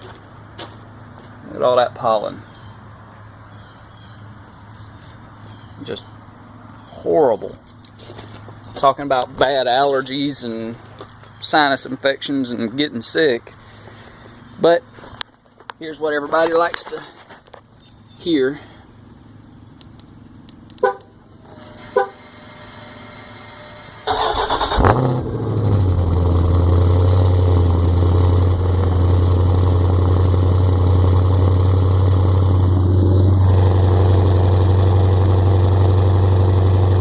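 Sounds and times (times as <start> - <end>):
car engine starting and idling: 17.9 - 37.0.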